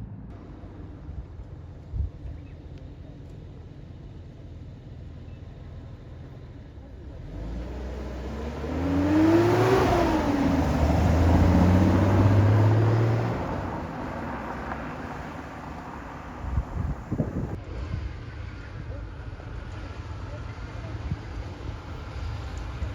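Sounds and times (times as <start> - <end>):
car driving past: 7.1 - 17.6.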